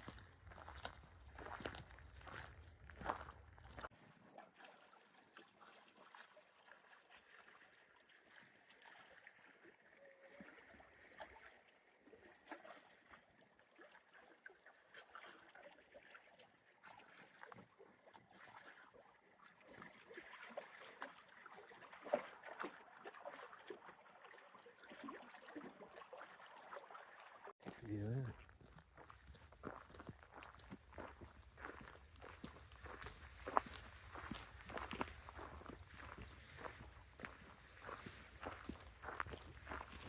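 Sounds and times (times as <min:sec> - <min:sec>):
footsteps on a trail: 0:00.0 - 0:03.9, 0:27.6 - 0:40.0.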